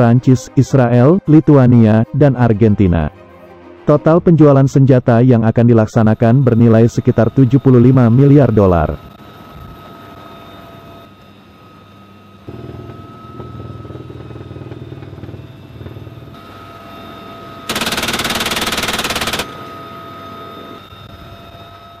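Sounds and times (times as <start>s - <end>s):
helicopter turbine whine: 0.0s - 22.0s
machine gun rapid fire: 17.7s - 19.6s.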